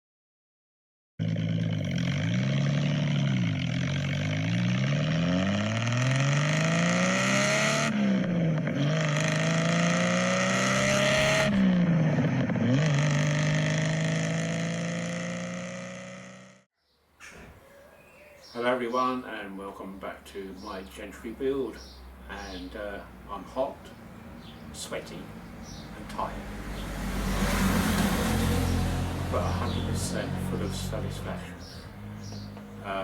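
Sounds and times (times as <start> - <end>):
car engine accelerating: 1.2 - 16.7, 22.2 - 33.0.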